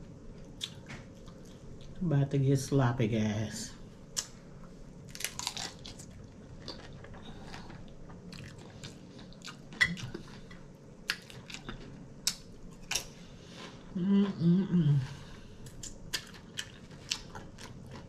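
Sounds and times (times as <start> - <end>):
person chewing crunchy chip: 5.1 - 14.5, 15.6 - 18.0.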